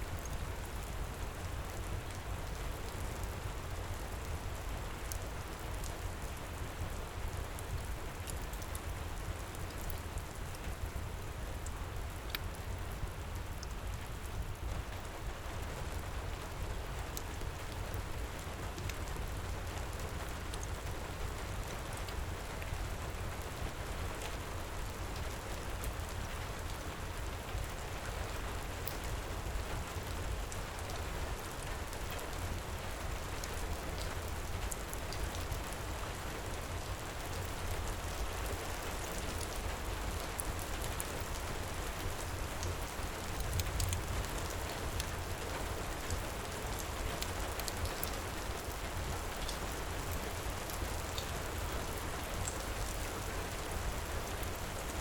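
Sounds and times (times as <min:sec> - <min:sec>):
heavy rain pouring: 0:14.5 - 0:55.0
wood fire crackling: 0:36.9 - 0:53.2.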